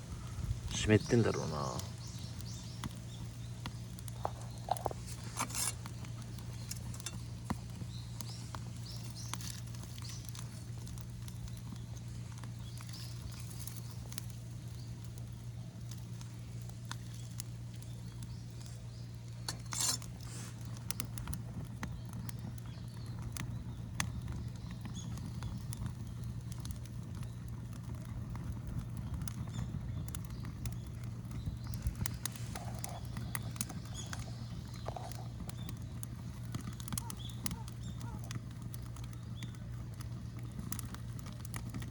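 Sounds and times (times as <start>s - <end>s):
steady low rumble: 0.0s - 0.8s
bonfire crackling and popping: 0.0s - 41.9s
loud fire snap: 0.0s - 41.9s.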